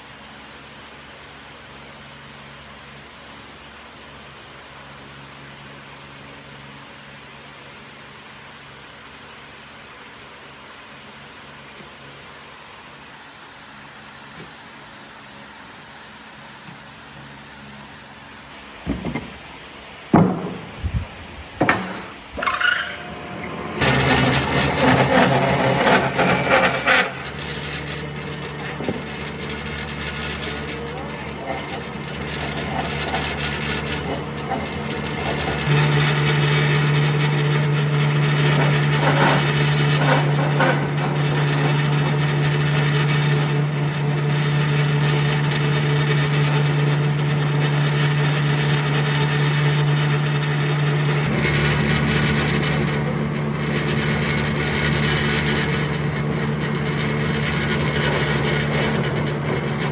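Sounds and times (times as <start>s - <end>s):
power tool working wood: 21.6s - 59.9s.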